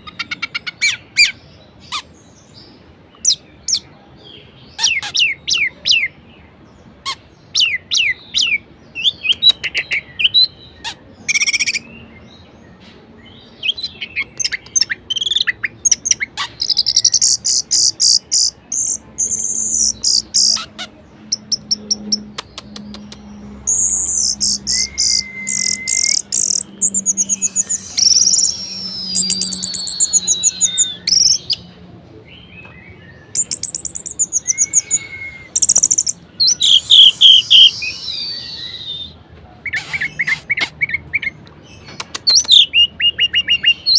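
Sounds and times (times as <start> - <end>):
thrush singing: 19.0 - 31.8, 33.4 - 39.1.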